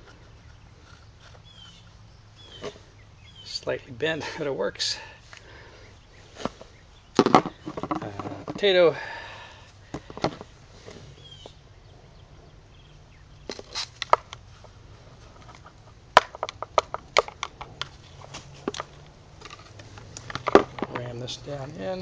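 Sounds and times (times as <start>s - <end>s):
clicks and knocks handling pipe: 7.2s - 8.7s, 15.3s - 21.2s.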